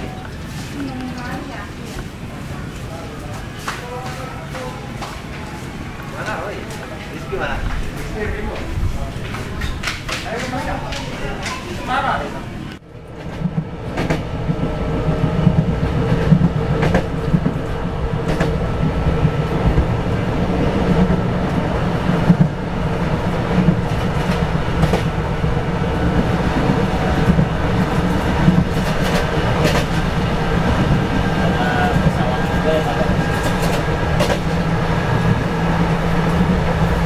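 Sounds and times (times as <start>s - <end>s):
train rumbling on track: 0.0s - 37.0s
wheels clicking over rails: 13.0s - 37.0s.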